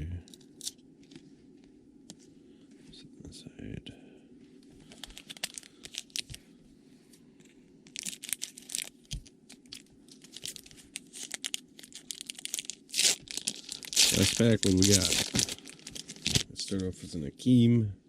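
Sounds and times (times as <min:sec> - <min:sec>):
plastic packaging crinkling: 0:04.8 - 0:06.4, 0:07.9 - 0:16.9.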